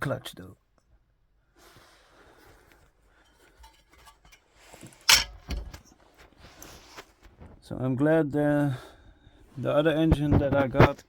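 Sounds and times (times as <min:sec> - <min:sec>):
faint shuffling: 0:05.8 - 0:11.0.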